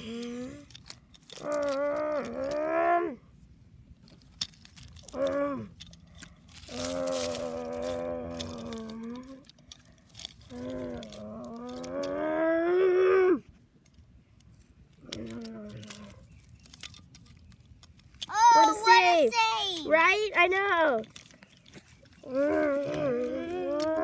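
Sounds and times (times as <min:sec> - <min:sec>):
child making engine noises: 0:18.3 - 0:21.0.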